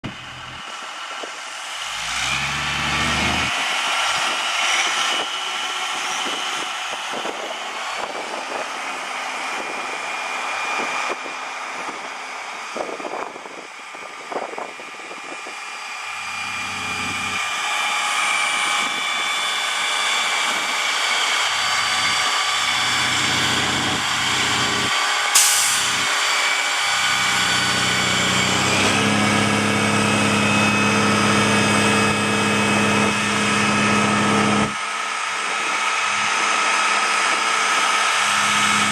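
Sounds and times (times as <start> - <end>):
diesel engine running: 0.0 - 38.9
brief sharp hiss: 25.4 - 26.0.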